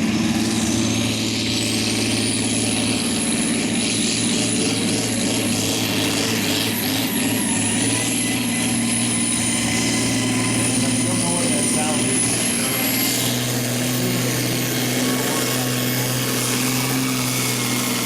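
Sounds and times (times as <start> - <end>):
tractor engine running: 0.0 - 18.0
announcer talking: 11.0 - 13.2, 13.9 - 15.4.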